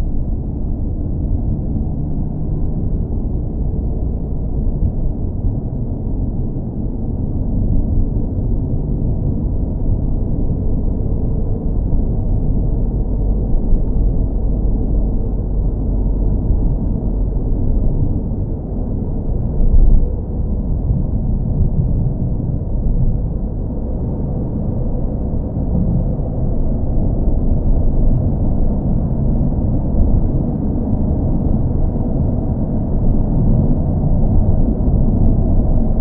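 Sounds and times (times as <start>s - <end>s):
car engine rumble: 0.0s - 36.0s.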